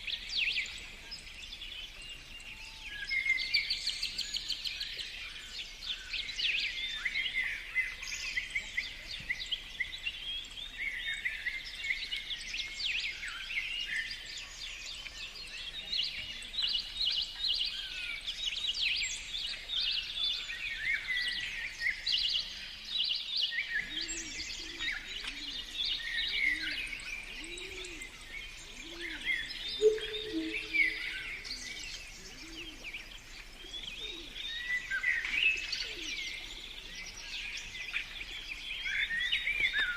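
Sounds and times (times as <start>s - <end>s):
songbirds chirping and trilling: 0.0s - 39.9s
low bird call: 23.8s - 36.6s.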